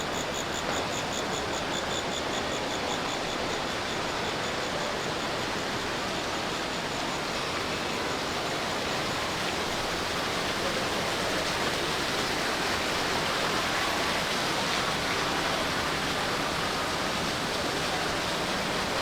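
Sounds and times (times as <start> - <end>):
shopping mall background noise: 0.0 - 19.0.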